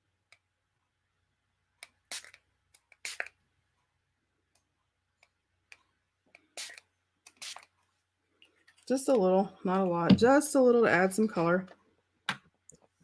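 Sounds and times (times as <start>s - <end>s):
spray bottle spritzing: 2.1s - 2.4s, 3.0s - 3.3s, 6.6s - 7.7s.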